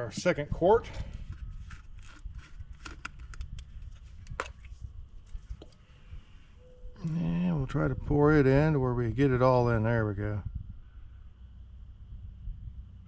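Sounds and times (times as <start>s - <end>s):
plastic bottle clicking and crackling: 1.3s - 4.6s.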